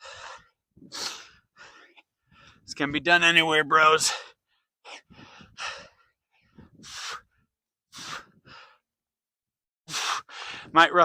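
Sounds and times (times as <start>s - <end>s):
man breathing hard: 0.0s - 2.7s, 4.0s - 9.0s, 9.9s - 10.7s.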